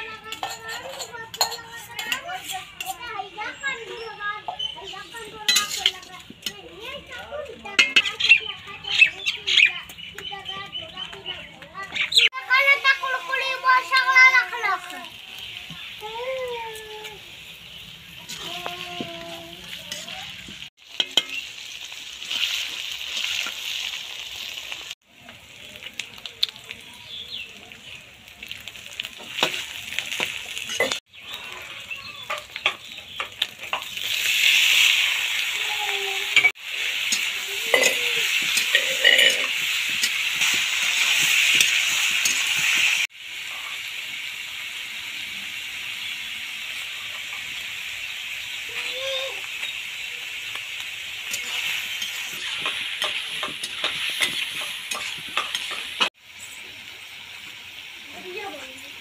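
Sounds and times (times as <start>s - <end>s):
onions sizzling in hot oil: 0.0s - 59.0s
metal spatula scraping a pan: 0.1s - 3.3s, 3.9s - 6.7s, 7.6s - 8.5s, 18.2s - 21.4s, 36.3s - 43.8s, 51.3s - 56.1s.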